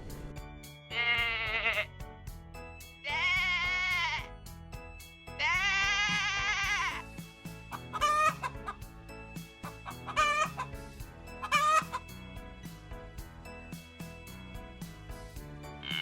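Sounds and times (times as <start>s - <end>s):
background music with steady beat: 0.0s - 16.0s
long bleat: 0.9s - 1.9s, 3.0s - 4.3s, 5.4s - 7.0s
chicken calling: 7.7s - 8.8s, 9.6s - 10.7s, 11.4s - 12.0s.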